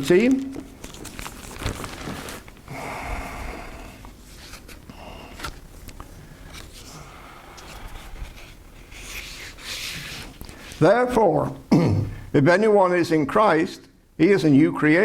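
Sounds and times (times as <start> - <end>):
pages rustling: 0.0 - 2.7, 4.2 - 7.0, 7.6 - 10.9
breaths close to microphone: 2.7 - 4.2, 6.2 - 10.8, 12.0 - 12.4.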